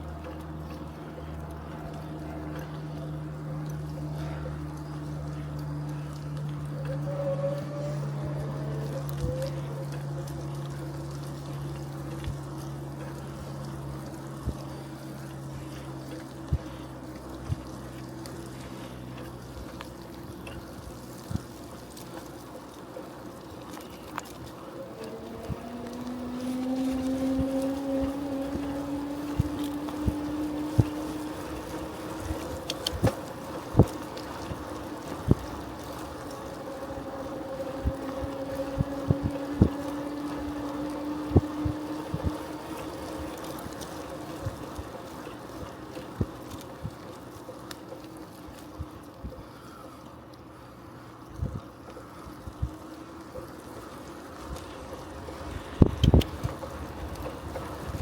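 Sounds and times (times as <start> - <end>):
bicycle rolling on road: 0.0 - 58.0
low hum: 0.0 - 58.0
wind on microphone: 36.9 - 42.6.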